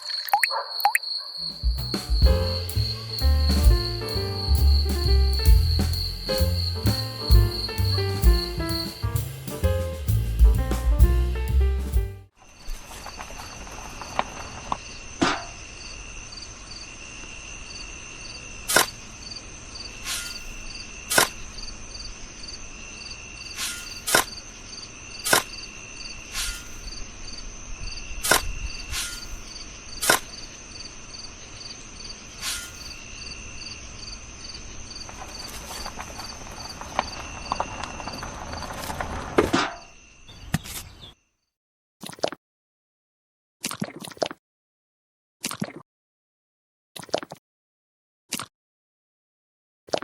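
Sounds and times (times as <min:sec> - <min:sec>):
insects chirping: 0:00.0 - 0:09.5, 0:12.4 - 0:41.2.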